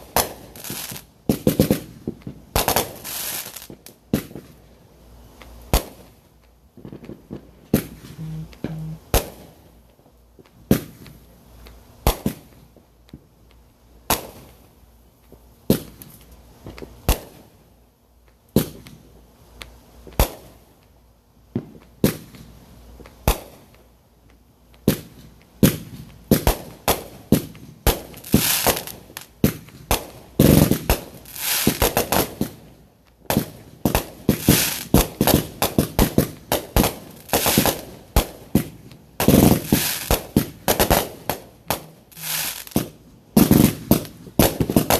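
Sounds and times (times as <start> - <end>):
crackling fireworks bangs: 0.0 - 13.4, 14.0 - 17.7, 18.4 - 19.1, 19.9 - 20.8, 21.5 - 23.9, 24.7 - 44.9
fireworks bangs: 33.3 - 44.9.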